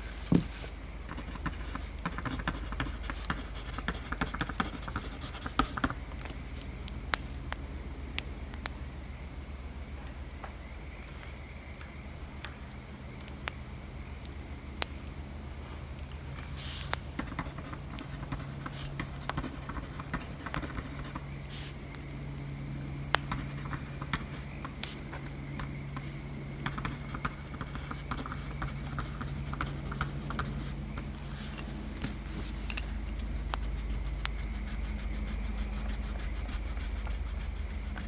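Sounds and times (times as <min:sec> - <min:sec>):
pen writing on paper: 0:00.3 - 0:06.0, 0:26.7 - 0:38.0
crackling bonfire: 0:06.0 - 0:38.0.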